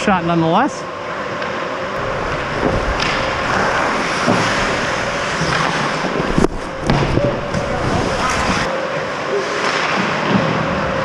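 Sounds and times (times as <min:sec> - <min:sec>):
skates and air hissing: 0:02.0 - 0:08.7.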